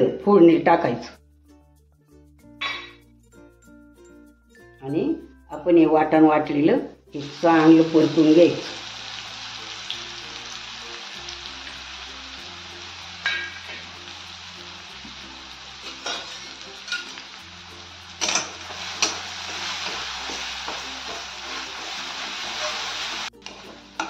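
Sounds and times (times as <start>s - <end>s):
paste sizzling in hot oil: 7.2s - 24.0s
spatula stirring: 15.0s - 17.4s, 18.1s - 24.0s.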